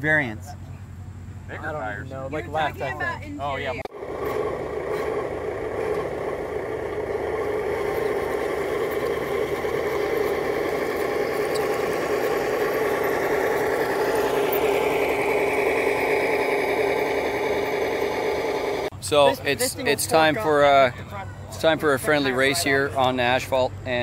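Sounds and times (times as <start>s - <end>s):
electric motor whine: 3.9s - 18.9s.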